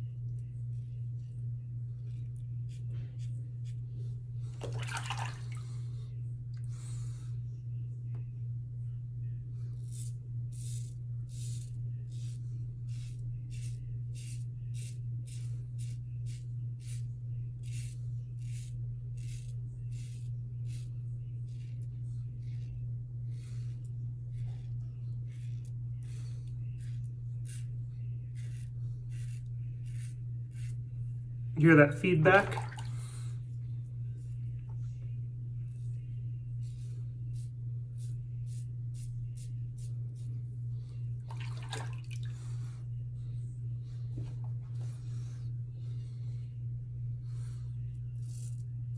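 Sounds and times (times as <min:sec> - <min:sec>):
steady low hum: 0:00.0 - 0:48.9
water splash: 0:04.6 - 0:05.5
razor scraping stubble: 0:09.8 - 0:30.9.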